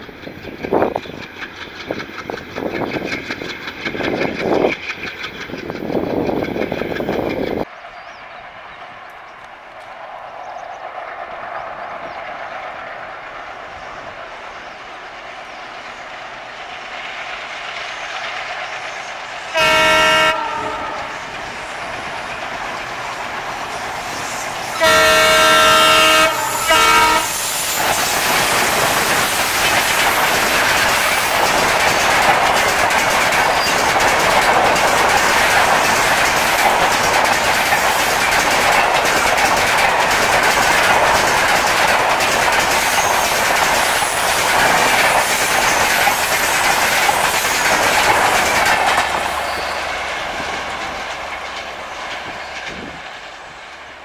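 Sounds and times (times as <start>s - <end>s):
locomotive air horn blasts: 19.5s - 21.2s, 24.7s - 27.6s
wheels clattering over rail joints: 27.6s - 53.2s.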